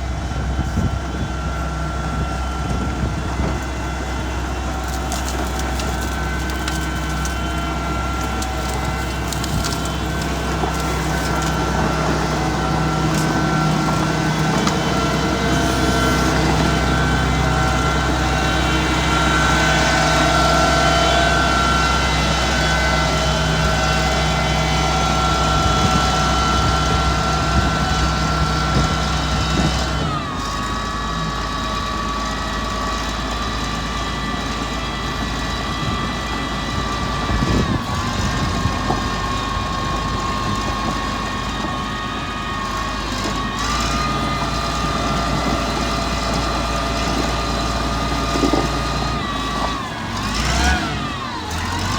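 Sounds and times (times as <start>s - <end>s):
diesel engine running under load: 0.0s - 51.9s
brush and roots crackling: 4.6s - 21.8s.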